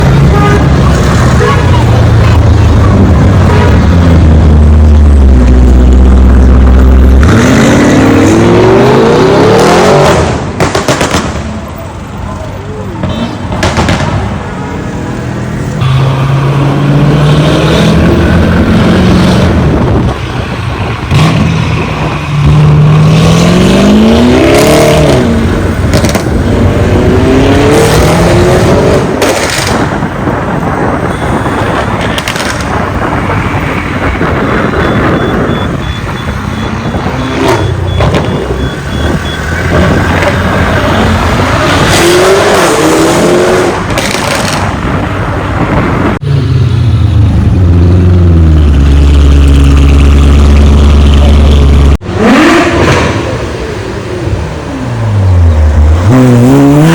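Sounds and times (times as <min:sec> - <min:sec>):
car engine revving and accelerating: 0:02.9 - 0:10.5, 0:15.8 - 0:20.1, 0:21.1 - 0:29.8, 0:39.0 - 0:44.7, 0:47.6 - 0:56.9
exhaust cracks: 0:29.0 - 0:31.1, 0:31.7 - 0:35.8, 0:43.7 - 0:46.2.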